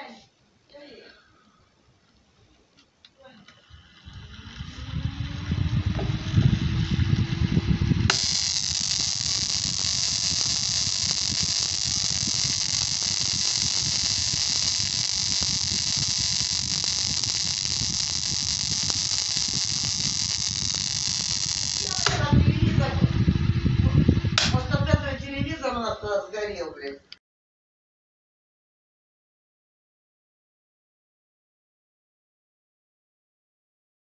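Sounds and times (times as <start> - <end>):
fan motor humming: 3.4 - 25.9
high-pitched hissing buzz: 3.6 - 23.0.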